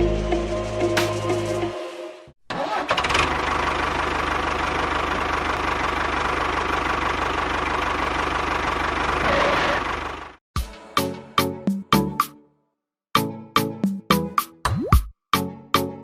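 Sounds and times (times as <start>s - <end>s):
small engine running: 2.6s - 10.4s.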